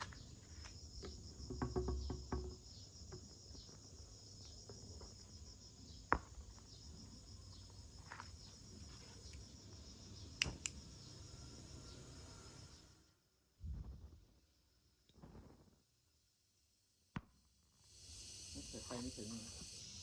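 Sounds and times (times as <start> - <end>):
crickets chirping: 0.0 - 13.6, 15.8 - 20.0
sharp clicks: 10.4 - 10.8.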